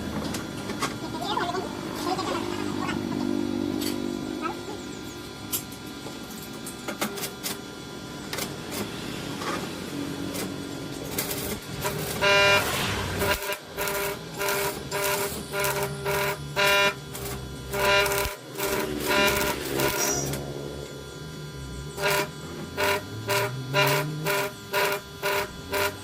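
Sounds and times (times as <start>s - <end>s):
horn tooting: 11.8s - 17.0s, 17.7s - 20.4s, 22.0s - 26.0s.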